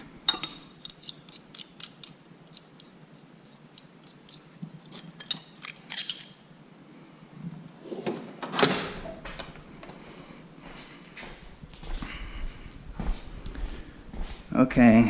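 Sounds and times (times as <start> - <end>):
metal hand tools clinking: 0.3 - 2.9, 3.7 - 6.4
metal tools clattering: 4.9 - 6.4.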